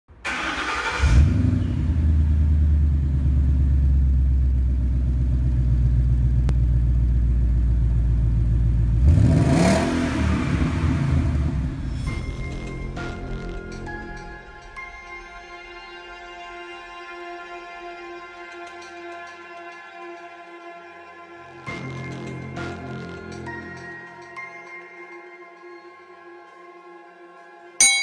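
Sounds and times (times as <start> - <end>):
engine revving: 0.3 - 6.7, 7.5 - 14.2
car engine rumble: 0.3 - 14.3
whoosh: 10.2 - 14.8.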